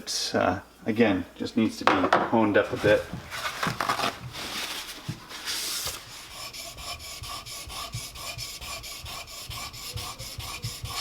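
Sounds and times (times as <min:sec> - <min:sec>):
chisel rubbing on whetstone: 0:06.2 - 0:11.0.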